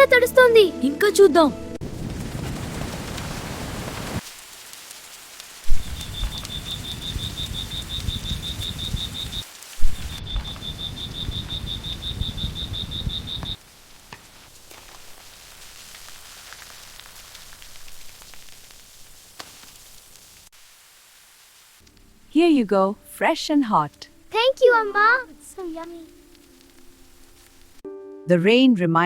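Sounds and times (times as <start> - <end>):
rain: 1.8 - 27.8
faint hiss: 2.7 - 27.8
animal pulsing chirp: 5.8 - 9.4, 10.0 - 13.6.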